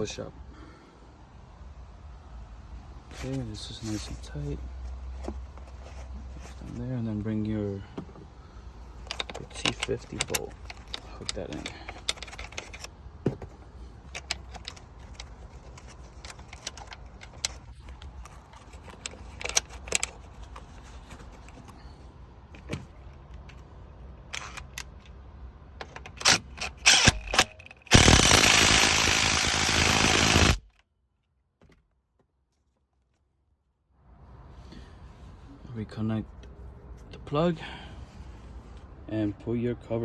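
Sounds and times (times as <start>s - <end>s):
ratchet clicking: 26.2s - 30.7s.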